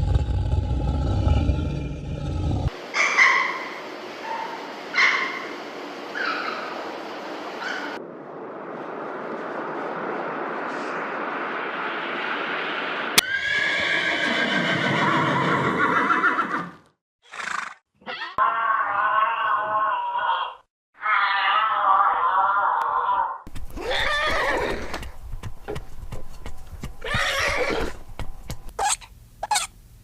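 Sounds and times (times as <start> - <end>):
steady noise: 3.8 - 13.2
horses neighing: 13.2 - 17.7, 23.5 - 29.7.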